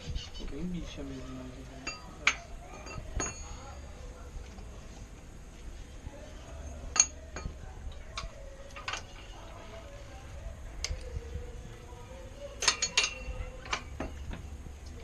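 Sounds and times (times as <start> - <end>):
light metallic clinks: 1.8 - 4.7, 12.4 - 15.0.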